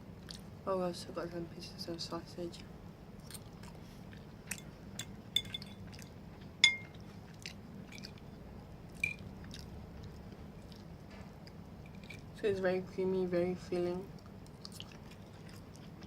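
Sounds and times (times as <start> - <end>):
chewing and mouth sounds: 0.2 - 0.5, 2.5 - 6.2, 6.8 - 12.3, 14.1 - 16.0
sharp ringing clink: 6.6 - 6.9.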